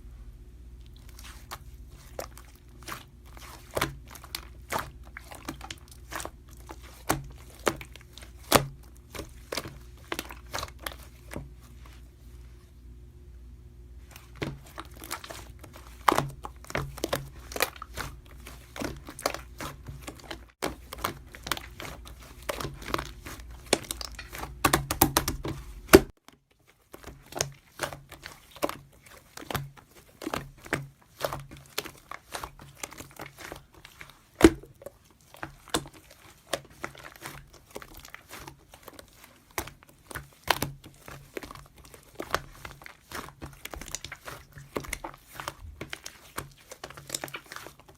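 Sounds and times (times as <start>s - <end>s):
dense clicks and crinkling: 14.0s - 47.9s.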